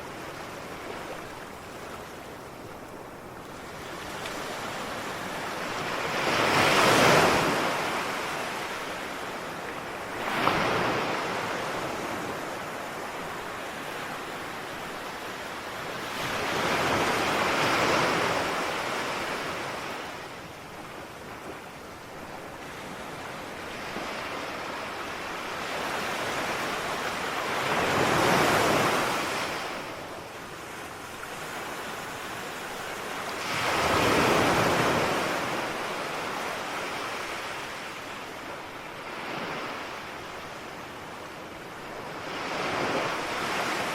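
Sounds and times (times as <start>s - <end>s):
ocean waves crashing on shore: 0.0s - 43.9s.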